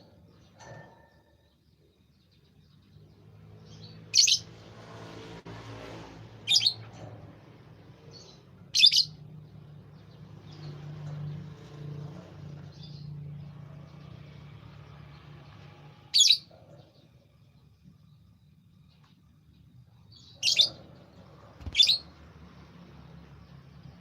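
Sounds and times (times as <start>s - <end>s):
bird chirping high: 3.7s - 4.5s, 6.4s - 6.9s, 8.1s - 9.3s, 16.1s - 16.5s, 20.1s - 21.0s, 21.6s - 22.1s.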